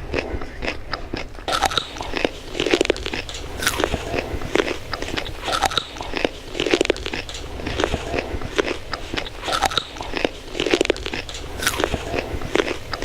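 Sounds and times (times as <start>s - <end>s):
chewing crunchy food: 0.0s - 13.0s.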